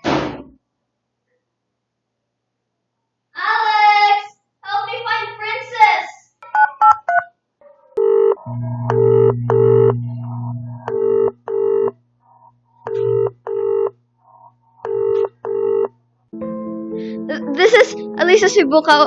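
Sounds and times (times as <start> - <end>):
telephone ringback tone: 8.0 - 11.9, 12.9 - 13.9, 14.8 - 15.9
low hum: 8.0 - 16.2
phone keypad beeps: 14.9 - 15.9.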